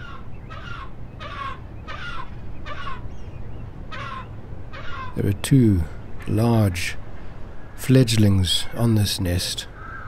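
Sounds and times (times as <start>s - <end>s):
fledglings begging calls: 0.0s - 5.4s.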